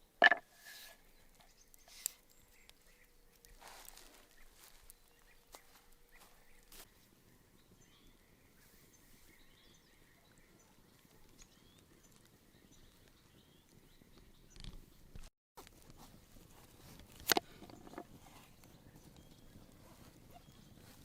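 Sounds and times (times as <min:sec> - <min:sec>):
faint bird chirps: 0:00.0 - 0:14.8.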